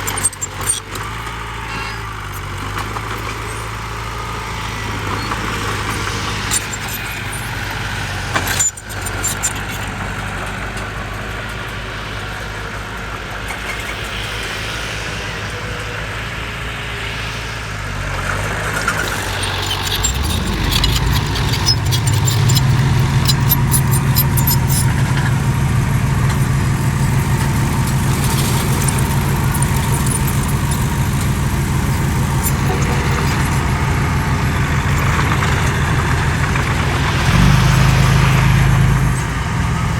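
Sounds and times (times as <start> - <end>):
heavy diesel engine running: 0.0 - 39.9
rapid metallic clanking: 18.6 - 39.9.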